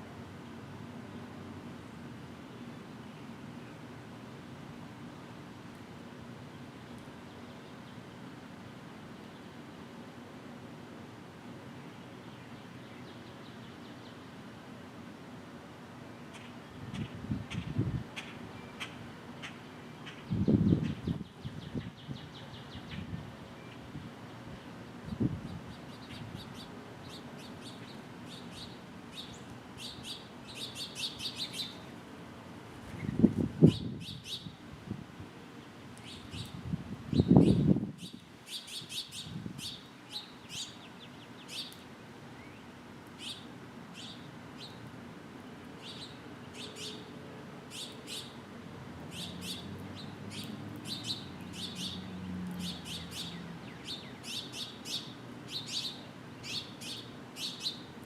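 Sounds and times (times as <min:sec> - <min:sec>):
birds chirping: 0:25.0 - 0:31.8, 0:49.1 - 0:57.9.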